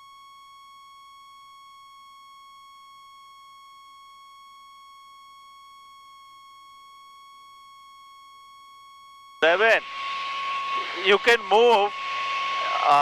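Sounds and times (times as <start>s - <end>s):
steady electronic tone: 9.4s - 13.0s.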